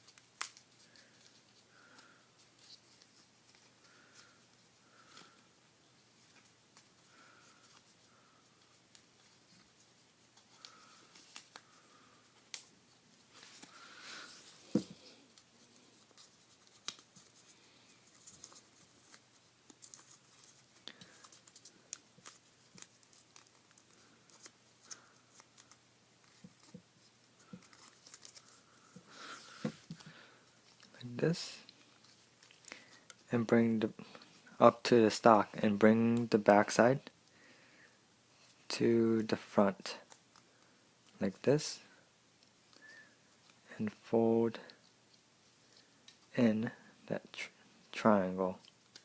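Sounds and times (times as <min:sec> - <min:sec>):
paper rustling: 0:06.2 - 0:31.0.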